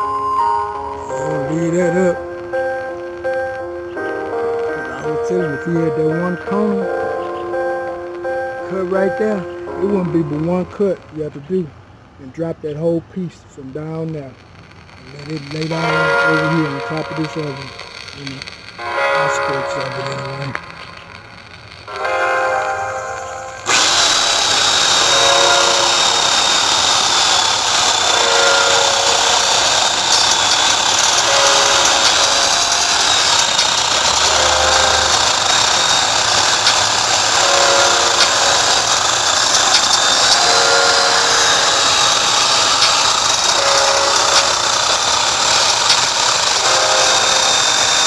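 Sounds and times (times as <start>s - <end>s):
chainsaw cutting at high revs: 0.4s - 10.8s, 15.1s - 48.0s.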